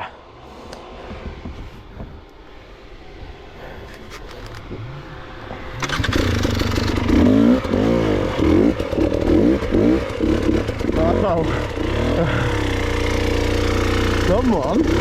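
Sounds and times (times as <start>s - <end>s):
dirt bike engine revving: 4.8s - 15.0s.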